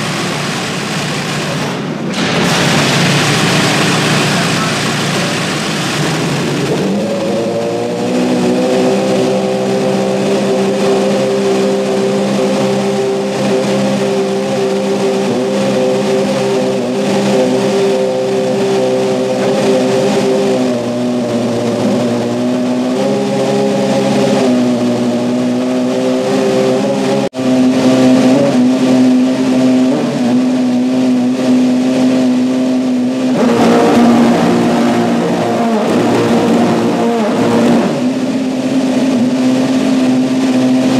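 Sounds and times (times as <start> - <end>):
racing engine at high idle: 0.0 - 40.9.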